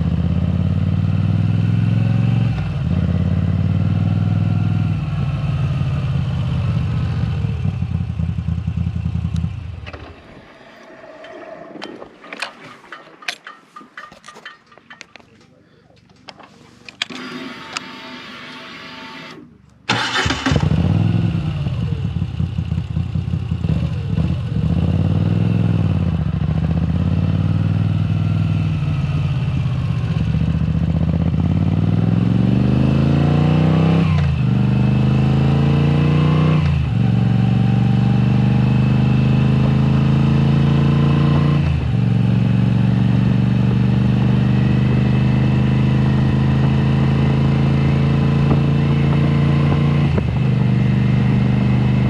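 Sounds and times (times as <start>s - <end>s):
motorcycle engine pulling away: 0.0s - 12.4s, 19.9s - 52.0s.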